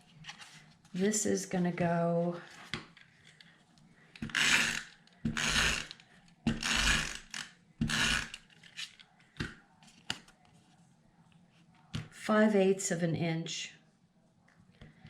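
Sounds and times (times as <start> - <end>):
tape runner ratcheting across paper: 4.2 - 8.8.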